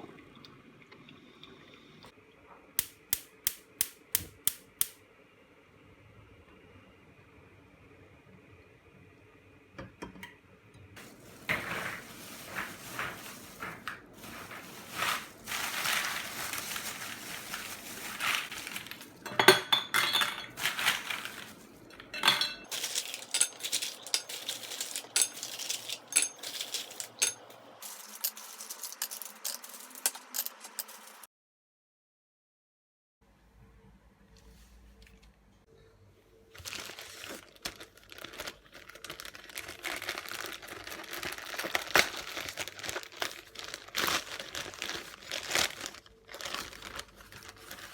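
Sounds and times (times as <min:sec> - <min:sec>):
rustling: 0:11.0 - 0:19.3, 0:20.4 - 0:31.2, 0:36.6 - 0:47.9
tableware clinking and knocking: 0:19.2 - 0:31.2.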